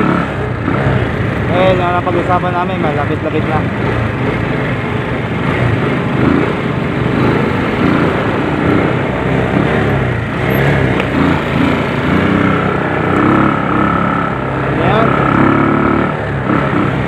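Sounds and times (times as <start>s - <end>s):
small motorcycle engine running: 0.0s - 17.0s
traffic noise: 0.0s - 17.0s.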